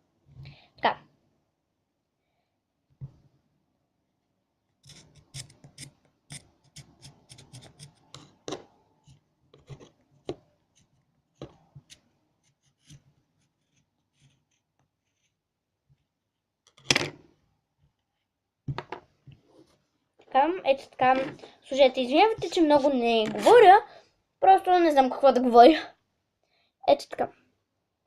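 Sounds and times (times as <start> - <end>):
scissors scraping candle wax: 4.8 - 8.3.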